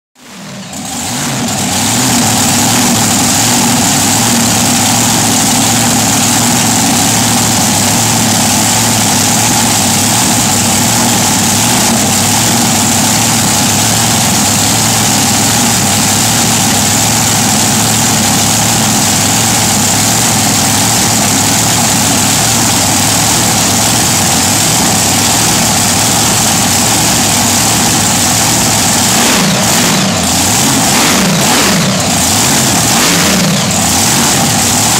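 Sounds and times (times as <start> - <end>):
truck engine idling: 0.2 - 34.9.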